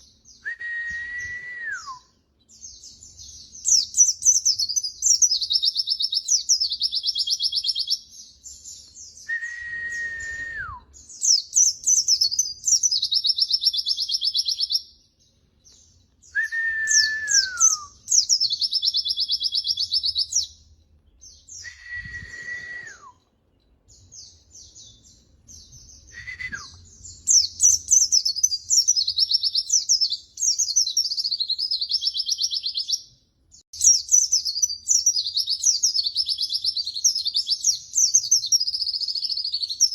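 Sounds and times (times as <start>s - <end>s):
lower bird whistle dropping in pitch: 0.4s - 2.1s, 9.2s - 14.8s, 16.2s - 20.5s, 21.4s - 23.3s, 25.6s - 33.0s
bird twittering and trilling: 2.4s - 22.7s, 23.5s - 33.2s, 33.8s - 39.9s.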